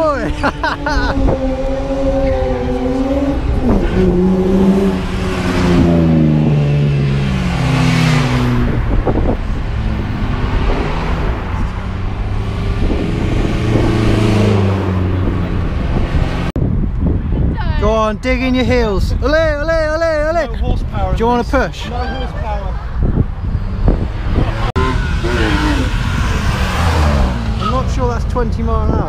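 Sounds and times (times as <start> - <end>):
car engine revving: 0.0 - 16.6, 23.3 - 28.5.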